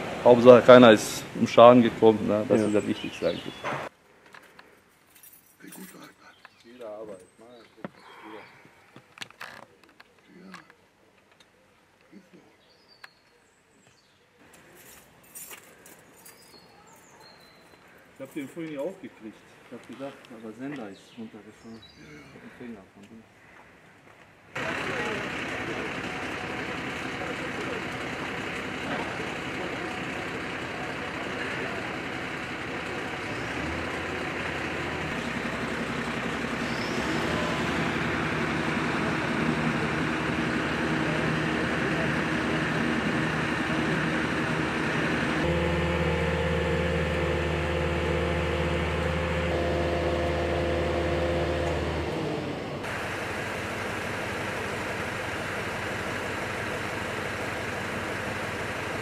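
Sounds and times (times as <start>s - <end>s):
heavy truck engine running: 0.0s - 3.9s, 24.6s - 59.0s.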